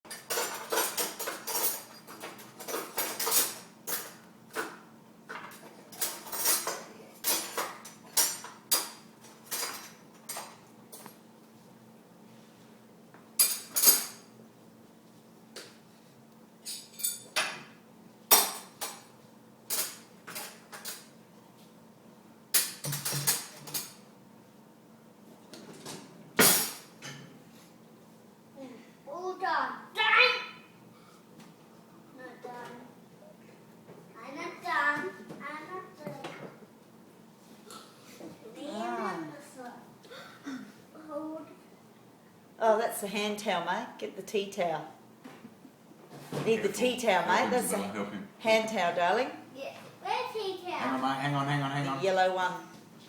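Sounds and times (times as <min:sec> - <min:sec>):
dishes and cutlery clinking: 0:00.1 - 0:11.2, 0:13.4 - 0:14.3, 0:16.6 - 0:21.2, 0:22.6 - 0:24.1, 0:25.6 - 0:27.5.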